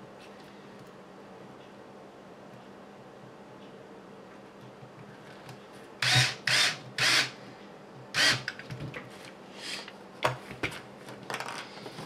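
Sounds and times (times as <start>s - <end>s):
electric screwdriver driving screw: 6.0s - 7.4s, 8.2s - 8.5s.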